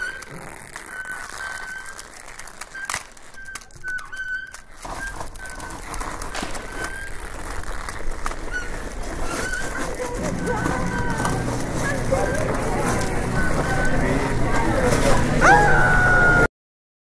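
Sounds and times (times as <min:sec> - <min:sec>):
low rumble: 0:10.0 - 0:16.5.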